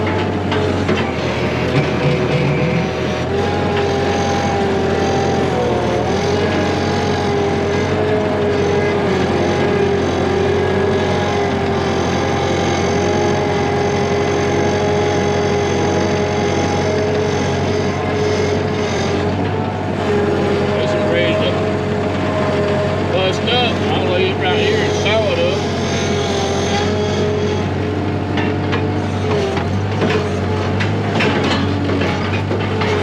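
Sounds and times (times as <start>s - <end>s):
engine running: 0.0s - 33.0s
steady whine: 15.8s - 33.0s.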